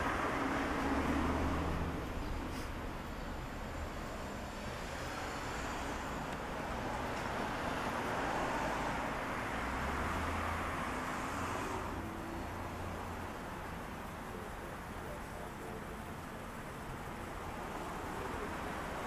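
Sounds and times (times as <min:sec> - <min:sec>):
road and wind noise: 0:00.0 - 0:19.0.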